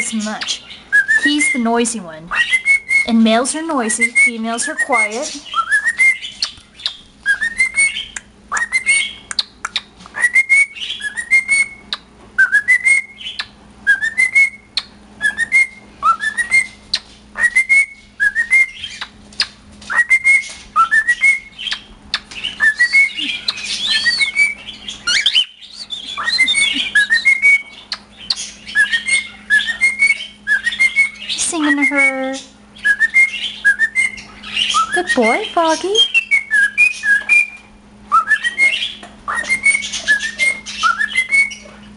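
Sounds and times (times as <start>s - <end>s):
cockatiel whistling: 0.6s - 1.7s, 2.3s - 3.2s, 3.9s - 35.4s, 36.0s - 41.8s
bird clicks: 9.3s - 9.9s.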